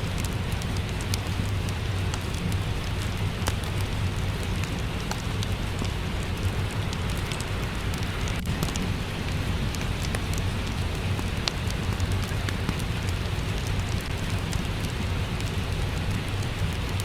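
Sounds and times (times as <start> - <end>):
steady rain falling: 0.0 - 17.0
wood fire crackling: 0.0 - 17.0.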